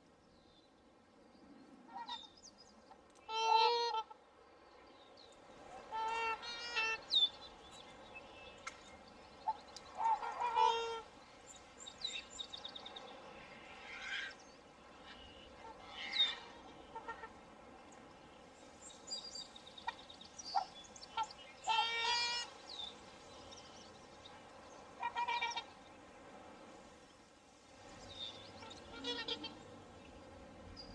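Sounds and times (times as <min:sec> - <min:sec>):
faint steady hiss: 0:00.0 - 0:30.9
swans honking: 0:01.9 - 0:02.3, 0:03.2 - 0:04.2, 0:05.7 - 0:07.7, 0:09.4 - 0:11.2, 0:13.6 - 0:17.6, 0:19.8 - 0:22.7, 0:24.8 - 0:25.8, 0:28.6 - 0:30.2.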